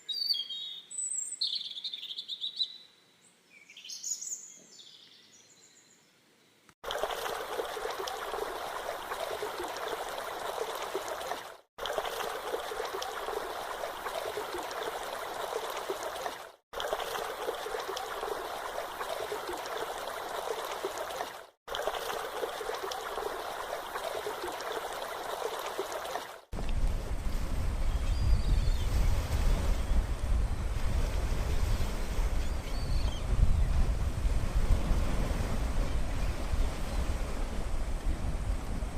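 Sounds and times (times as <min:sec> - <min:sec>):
water rushing and splashing: 0:06.8 - 0:28.0.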